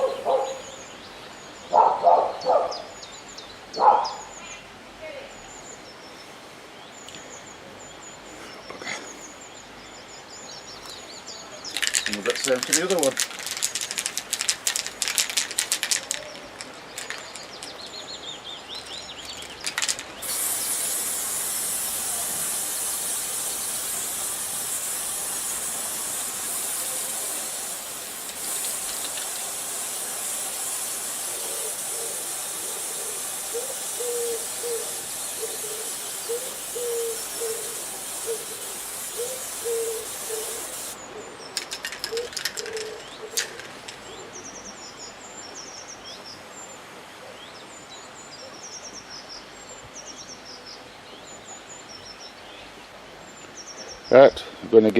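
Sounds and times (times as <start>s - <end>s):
bird calling: 0.0s - 5.9s, 10.6s - 46.0s
spray can rattling: 11.7s - 17.9s, 18.8s - 41.0s, 41.6s - 44.1s
spray can hissing: 11.8s - 17.8s, 19.2s - 41.0s.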